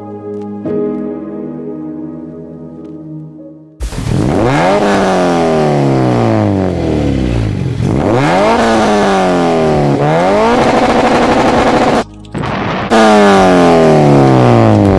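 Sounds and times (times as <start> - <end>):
car engine revving: 3.9 - 14.9.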